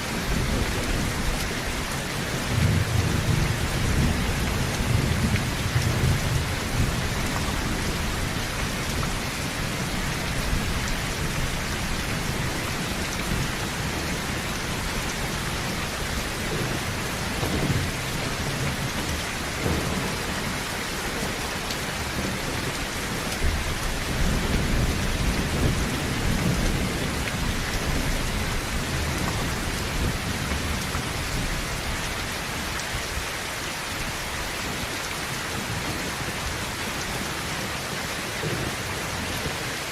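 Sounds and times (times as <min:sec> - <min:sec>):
heavy rain on a tin roof: 0:00.0 - 0:39.9
low thunder rumbling: 0:00.1 - 0:31.9.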